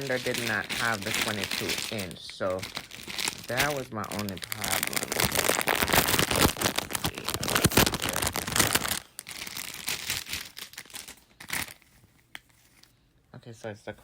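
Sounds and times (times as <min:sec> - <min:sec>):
plastic packaging crinkling: 0:00.0 - 0:12.9.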